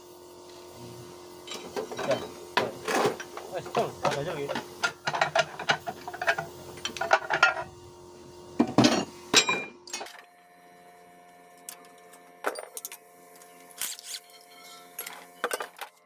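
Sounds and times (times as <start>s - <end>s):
metal tools clinking on engine parts: 1.5s - 7.7s, 11.7s - 13.0s, 13.8s - 16.0s.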